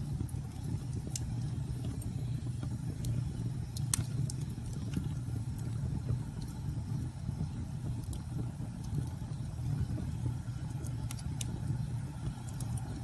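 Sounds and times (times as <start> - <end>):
fireplace crackling and popping: 0.0 - 13.0
low rumble of wind: 0.0 - 13.0.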